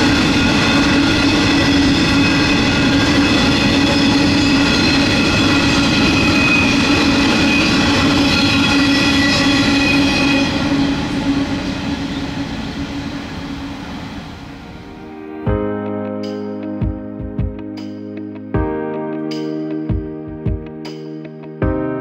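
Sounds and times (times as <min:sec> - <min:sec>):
train wagons rumbling on rails: 0:00.0 - 0:14.9
high steady whine: 0:00.0 - 0:15.5.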